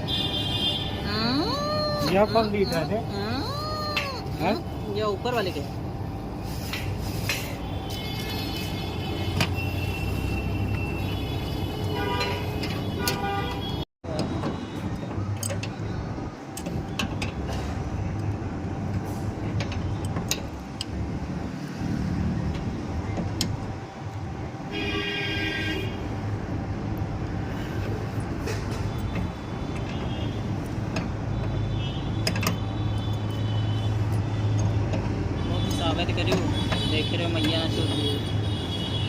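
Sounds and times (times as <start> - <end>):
street traffic hum: 0.0 - 39.0
vehicle horn: 7.7 - 13.8, 24.7 - 26.0
sharp clicks and knocks: 28.4 - 31.6, 32.2 - 33.3.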